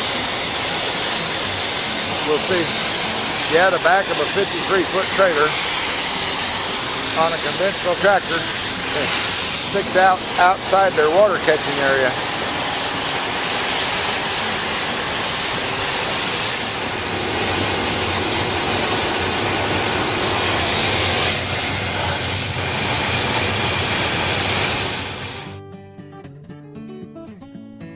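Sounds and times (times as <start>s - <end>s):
water spray hissing: 0.0s - 25.5s.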